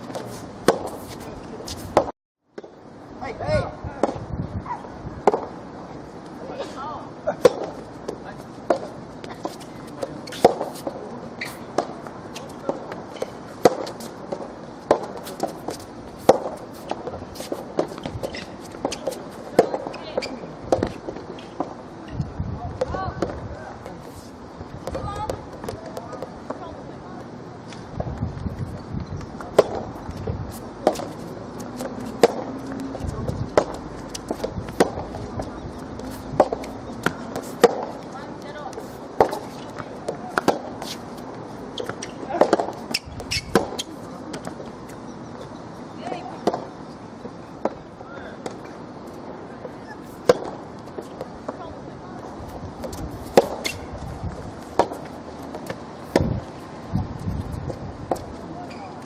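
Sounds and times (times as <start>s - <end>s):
racket hitting ball: 0.0s - 2.1s, 7.4s - 21.7s, 29.4s - 30.2s, 30.8s - 41.2s, 41.8s - 44.6s, 50.0s - 51.6s, 52.5s - 56.5s
footsteps on court: 7.5s - 21.8s, 27.7s - 45.0s, 48.4s - 59.0s
ball bouncing: 30.8s - 41.0s, 41.8s - 44.6s.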